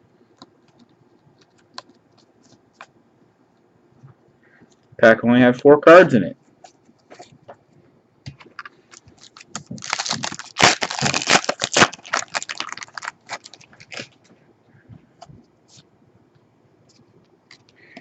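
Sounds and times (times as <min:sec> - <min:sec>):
wrapper tearing and crinkling: 0:08.9 - 0:14.2.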